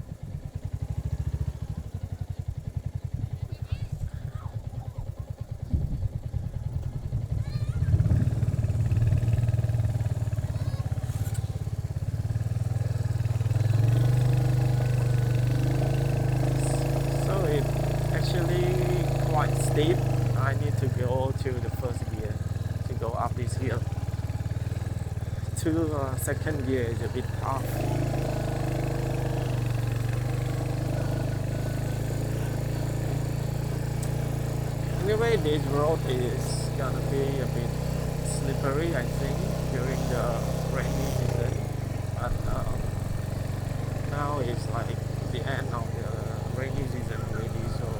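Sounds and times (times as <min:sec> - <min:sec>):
motorcycle engine climbing hill: 0:00.0 - 0:47.9.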